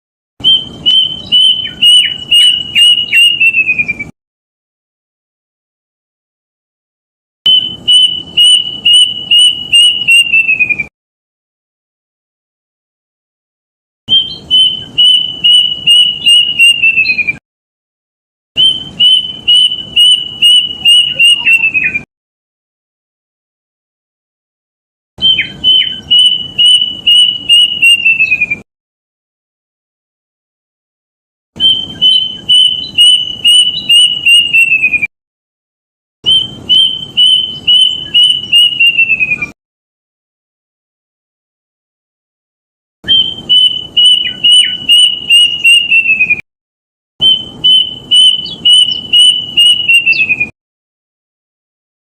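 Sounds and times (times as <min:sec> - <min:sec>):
cuckoo singing whistled song: 0:00.4 - 0:04.1, 0:07.5 - 0:10.9, 0:14.1 - 0:17.4, 0:18.6 - 0:22.1, 0:25.2 - 0:28.6, 0:31.6 - 0:35.1, 0:36.2 - 0:39.6, 0:43.0 - 0:46.4, 0:47.2 - 0:50.6.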